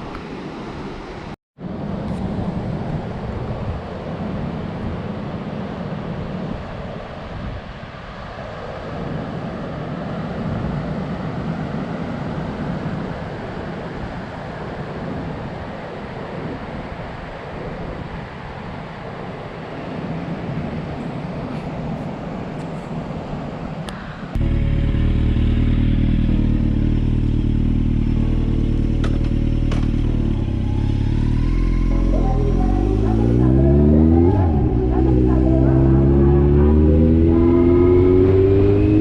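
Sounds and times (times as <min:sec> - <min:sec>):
wind rush: 0:00.0 - 0:24.4
motorcycle engine running: 0:24.4 - 0:39.0.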